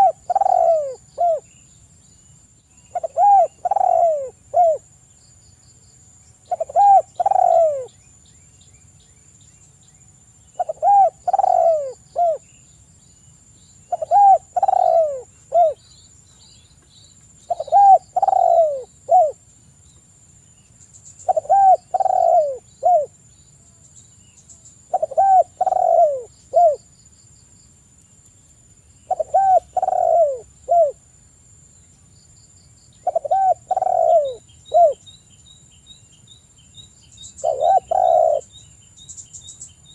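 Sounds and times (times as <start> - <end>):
dove cooing: 0.0 - 1.5, 2.9 - 4.8, 6.5 - 7.9, 10.6 - 12.4, 13.9 - 15.8, 17.5 - 19.4, 21.2 - 23.1, 24.9 - 26.8, 29.1 - 31.0, 33.0 - 35.0, 37.4 - 38.5.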